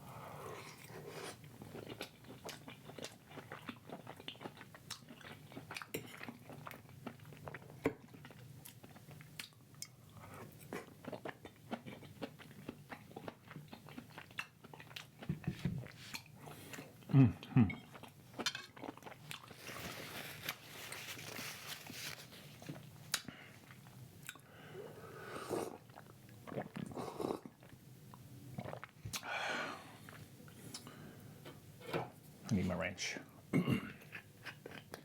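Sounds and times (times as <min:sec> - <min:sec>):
chewing and crunching food: 0:00.6 - 0:24.5, 0:34.0 - 0:35.0.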